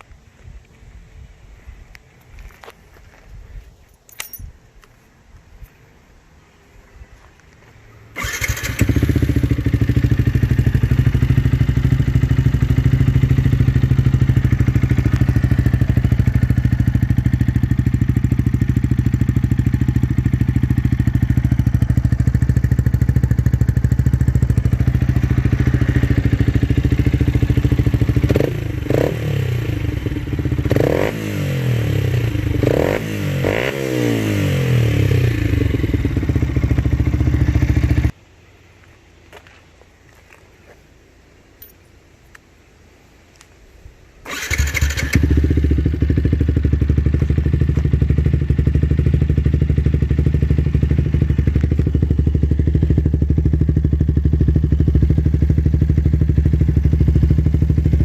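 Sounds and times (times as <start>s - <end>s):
motorcycle engine idling and revving: 7.2s - 38.2s, 44.3s - 58.0s.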